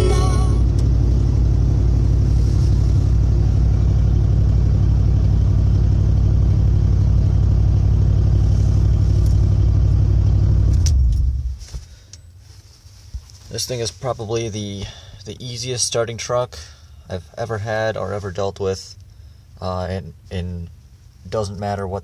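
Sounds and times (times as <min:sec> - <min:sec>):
truck engine idling: 0:00.0 - 0:10.7.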